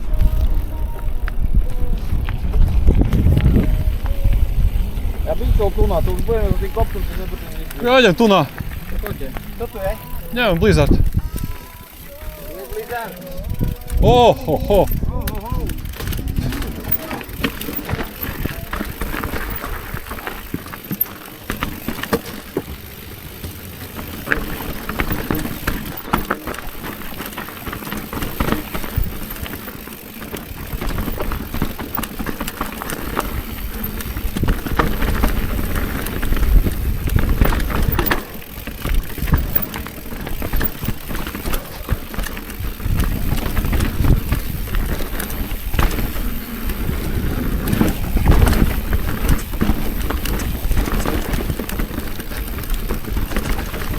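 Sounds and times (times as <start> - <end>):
wind rumble on microphone: 0.0 - 12.6, 13.3 - 20.8, 24.2 - 53.9
bicycle frame and chain rattling: 0.0 - 53.9
bicycle tyres rolling over stones: 0.0 - 53.9.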